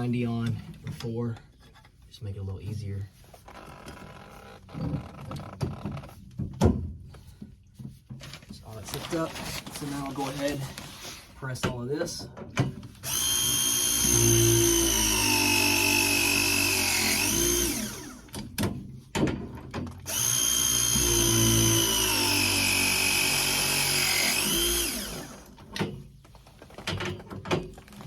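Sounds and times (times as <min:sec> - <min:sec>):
press tool motor whining: 0:13.0 - 0:18.3, 0:20.1 - 0:25.6.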